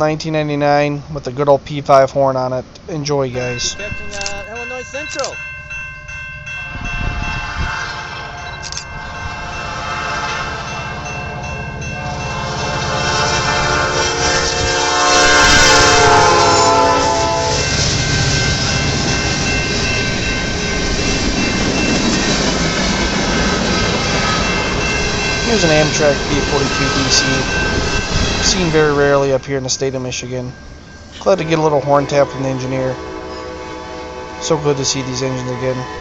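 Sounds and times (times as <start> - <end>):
train rumbling by: 0.0 - 36.0
locomotive air horn blasts: 6.8 - 8.5, 9.2 - 11.0, 12.0 - 17.9, 31.2 - 36.0.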